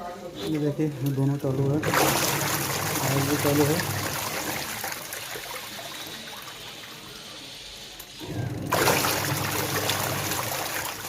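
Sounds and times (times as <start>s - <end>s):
motor hum: 1.4s - 5.1s, 8.0s - 11.0s
water sloshing in washing machine: 1.5s - 11.0s.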